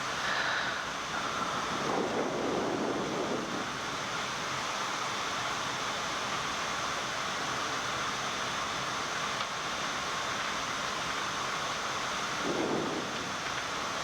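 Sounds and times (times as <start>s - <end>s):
rushing airflow: 0.0s - 4.2s, 12.4s - 13.4s
aircraft engine noise: 0.0s - 8.0s, 10.9s - 14.0s.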